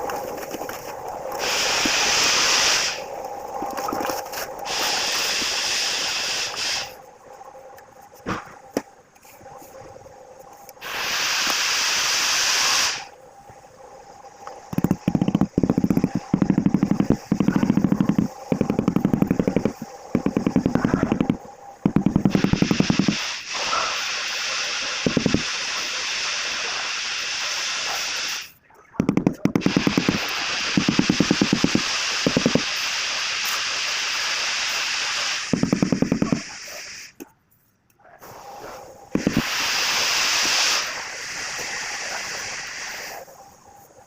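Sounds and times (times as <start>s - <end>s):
steady hissing noise: 0.0s - 44.0s
power tool hammering tile: 14.8s - 23.3s, 25.0s - 25.5s, 29.0s - 32.7s, 35.5s - 36.5s.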